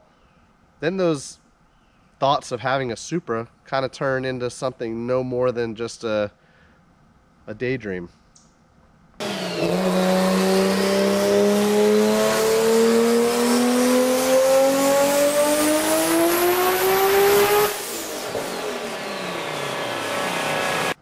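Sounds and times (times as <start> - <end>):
car engine revving at full throttle: 9.2 - 21.0.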